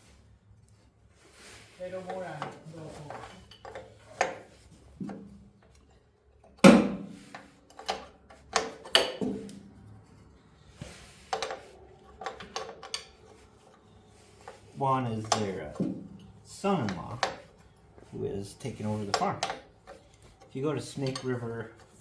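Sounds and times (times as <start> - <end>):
metal tools clanking: 11.4 - 17.9, 18.6 - 22.0.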